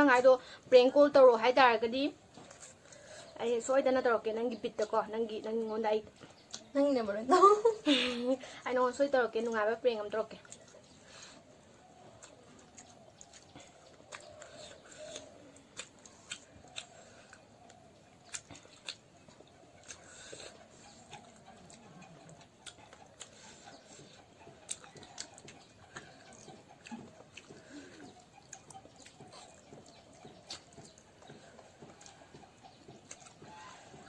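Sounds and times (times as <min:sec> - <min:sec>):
chewing food: 0:00.0 - 0:34.0
mouth clicks and smacks: 0:06.0 - 0:06.7, 0:10.3 - 0:34.0.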